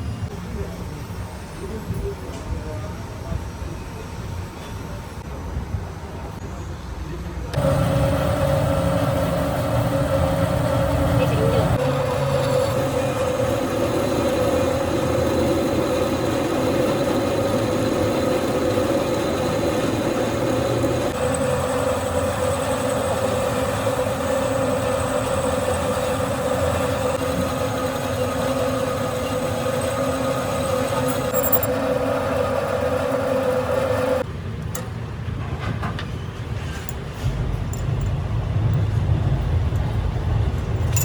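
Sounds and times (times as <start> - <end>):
rough mechanical noise: 7.5 - 34.3
lathe drive whining: 7.6 - 34.3.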